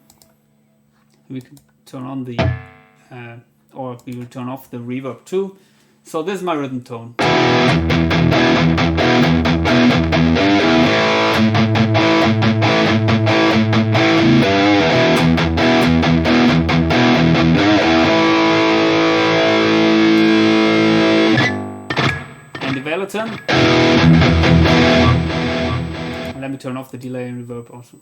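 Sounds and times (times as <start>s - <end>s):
distorted electric guitar riff: 2.4s - 3.1s, 7.2s - 26.4s.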